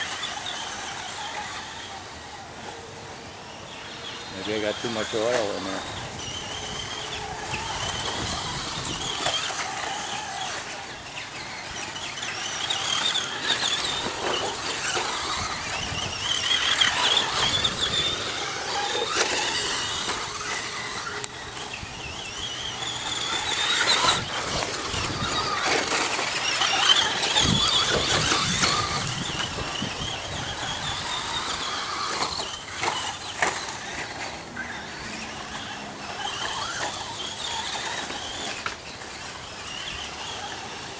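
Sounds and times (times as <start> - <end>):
electric motors whining: 0.0 - 40.9
toy truck clicks and knocks: 11.3 - 34.4, 35.4 - 40.9.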